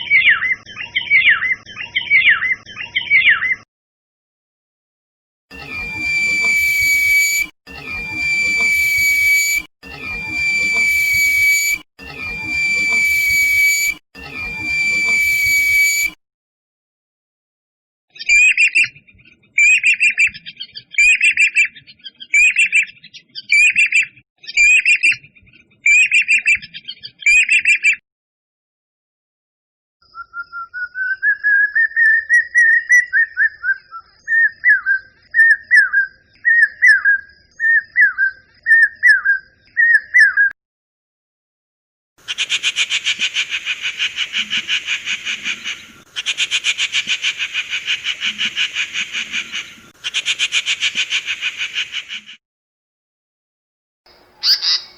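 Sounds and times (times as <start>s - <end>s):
harsh pulsing bird buzz: 5.5s - 16.2s, 54.1s - 54.9s
whistled bird notes: 5.6s - 16.2s, 18.2s - 19.0s, 19.6s - 25.2s, 25.8s - 28.0s, 30.0s - 40.5s, 54.1s - 54.9s
short repeated bird call: 54.1s - 54.9s.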